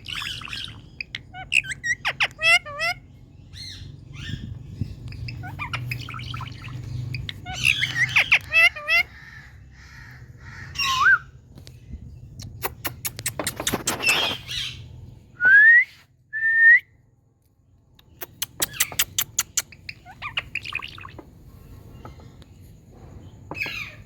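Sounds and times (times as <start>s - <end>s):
parakeet squawks and clicks: 0.0s - 3.0s, 5.0s - 9.1s, 12.4s - 14.6s, 18.0s - 21.2s
parakeet chatter: 0.0s - 11.0s, 12.4s - 14.9s, 18.0s - 22.3s.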